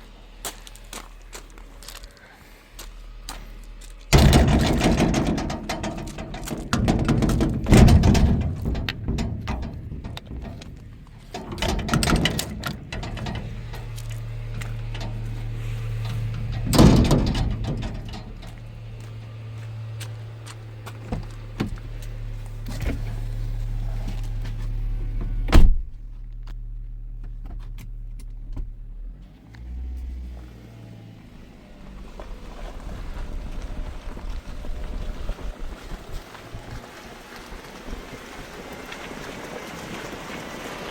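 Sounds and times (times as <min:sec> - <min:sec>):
vehicle engine humming: 0:00.0 - 0:40.9
loud thumps: 0:04.1 - 0:19.0
knocks: 0:04.2 - 0:14.0.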